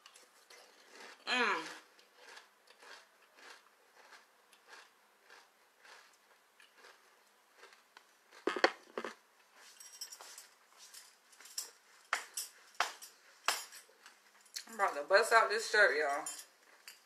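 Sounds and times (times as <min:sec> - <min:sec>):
person chewing crunchy cereal: 0:00.0 - 0:09.7.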